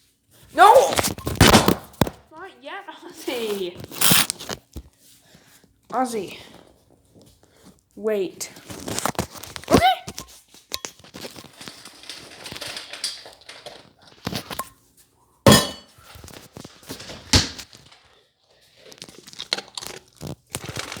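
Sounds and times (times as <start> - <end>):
dog crunching food: 11.0 - 14.6, 17.6 - 21.0
bowl knocking and clinking: 15.5 - 16.0.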